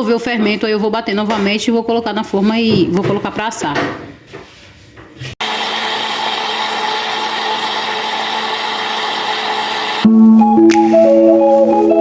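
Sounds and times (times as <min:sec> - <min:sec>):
electric blender running: 0:05.4 - 0:10.1.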